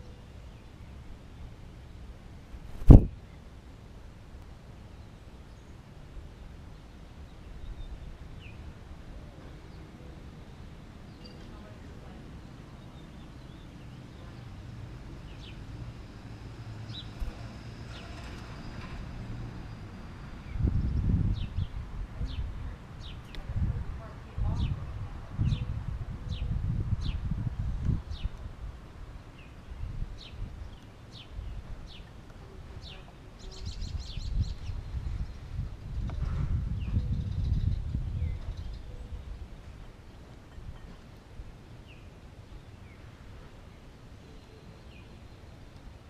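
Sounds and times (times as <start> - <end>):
wind rumble on microphone: 2.5 - 3.4, 15.2 - 40.9
soft thump: 2.7 - 3.1.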